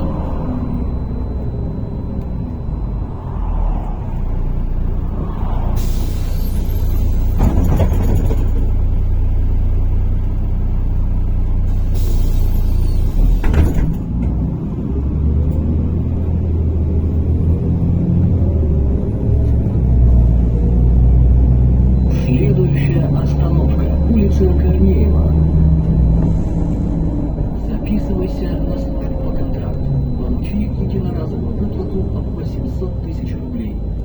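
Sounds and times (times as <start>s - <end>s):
bus diesel engine accelerating: 0.0s - 34.0s.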